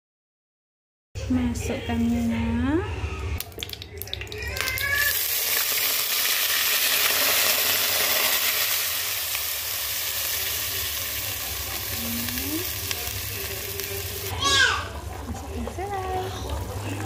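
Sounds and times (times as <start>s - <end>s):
paste sizzling in hot oil: 5.0s - 14.4s.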